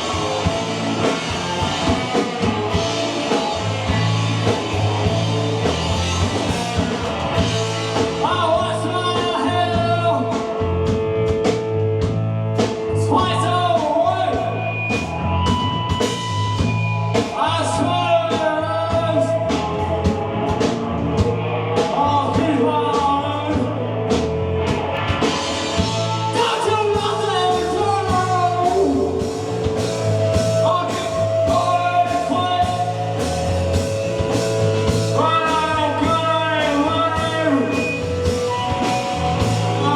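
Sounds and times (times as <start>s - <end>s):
bass guitar: 0.0s - 39.9s
drum kit: 0.0s - 39.9s
electric guitar: 0.0s - 39.9s
person singing: 25.9s - 29.5s.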